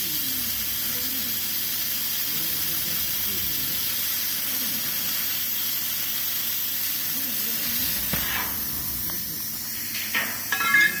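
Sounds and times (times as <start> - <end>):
wood fire burning: 6.3 - 11.0.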